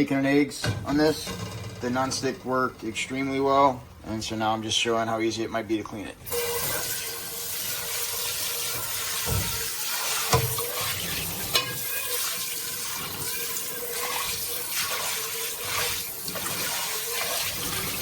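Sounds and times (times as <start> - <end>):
tap water running into pan: 6.3 - 18.0
pan knocking in sink: 9.1 - 12.3.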